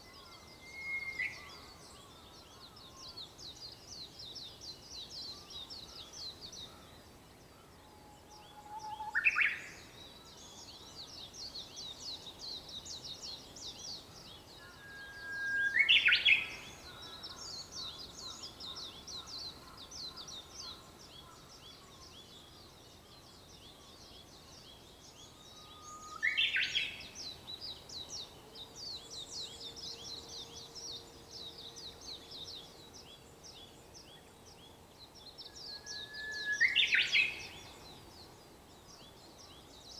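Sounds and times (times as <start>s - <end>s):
bush warbler whistling song: 0.0s - 1.6s, 14.6s - 19.2s, 24.3s - 28.3s, 35.4s - 39.9s.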